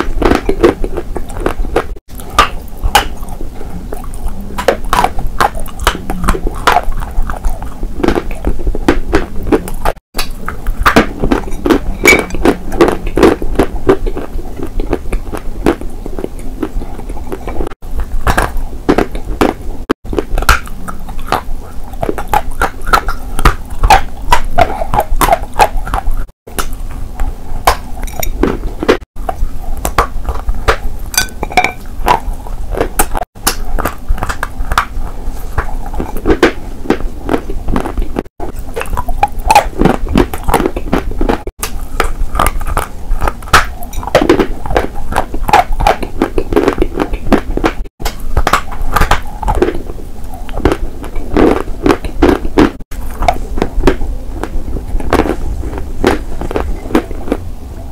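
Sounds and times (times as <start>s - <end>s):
biting and chewing chalk: 0.0s - 57.5s.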